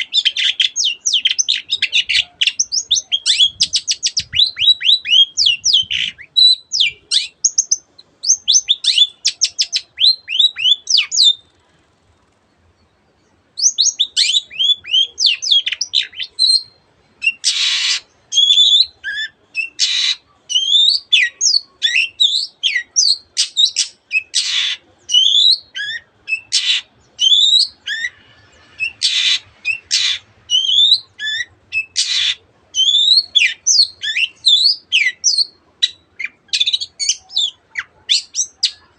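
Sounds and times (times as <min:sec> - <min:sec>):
shrike singing varied song: 0:00.0 - 0:38.9
harsh rasping bird notes: 0:25.8 - 0:34.4.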